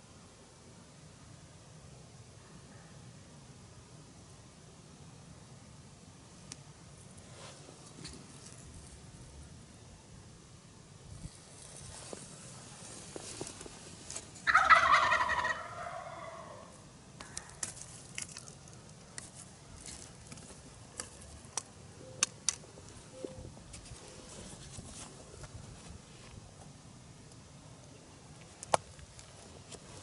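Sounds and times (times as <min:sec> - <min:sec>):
turkey gobbling: 0:14.4 - 0:17.4.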